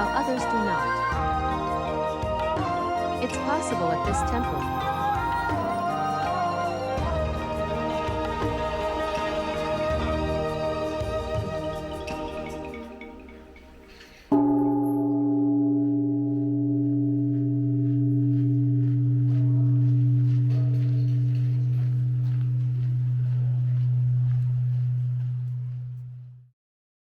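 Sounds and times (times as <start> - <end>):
large temple bell ringing: 14.3 - 25.7.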